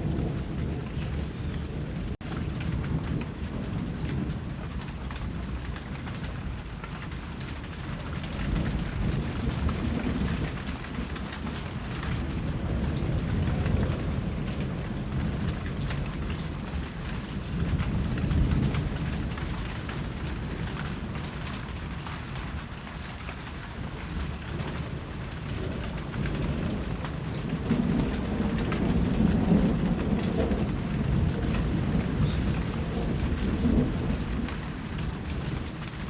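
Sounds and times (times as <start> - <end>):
low rumbles of thunder: 0.0 - 36.0
steady rain falling: 0.0 - 36.0.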